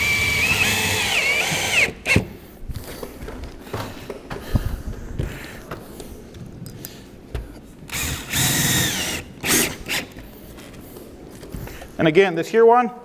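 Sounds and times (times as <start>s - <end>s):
power drill driving screw: 0.0s - 2.3s, 7.9s - 10.2s.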